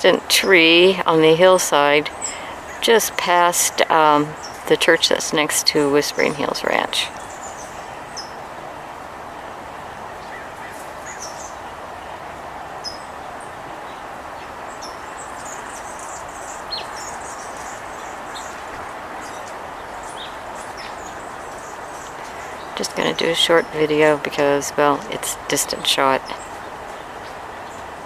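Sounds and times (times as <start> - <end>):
small birds chirping: 0.0 - 8.5, 9.4 - 28.0
outdoor background hiss: 0.0 - 28.0.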